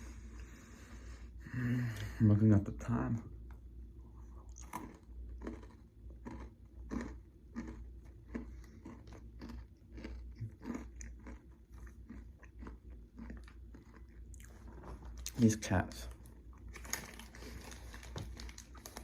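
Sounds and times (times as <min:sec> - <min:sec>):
person chewing granola bar: 0:04.1 - 0:15.5, 0:16.1 - 0:19.0.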